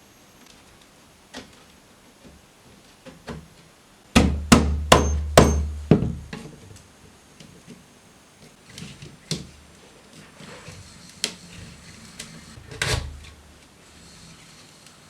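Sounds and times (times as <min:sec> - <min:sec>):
hammer blows: 0:04.2 - 0:05.9.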